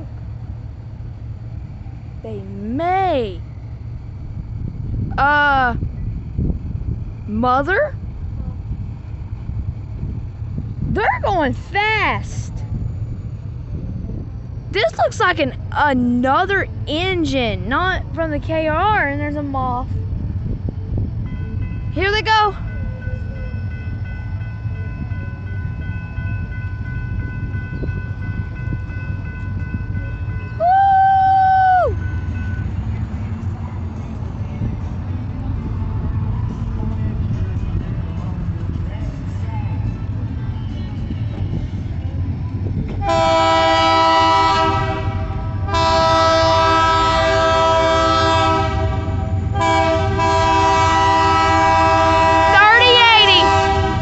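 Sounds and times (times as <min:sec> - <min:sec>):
freight train rolling past: 0:00.0 - 0:54.0
locomotive air horn blasts: 0:43.0 - 0:54.0.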